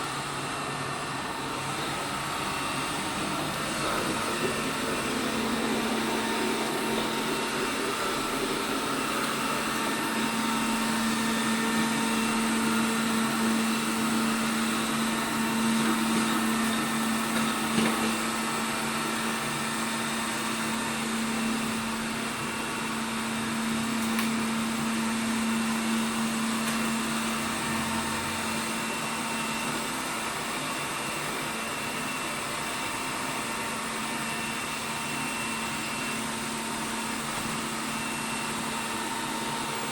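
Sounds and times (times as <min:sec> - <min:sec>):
robot vacuum whirring: 0:00.0 - 0:28.3.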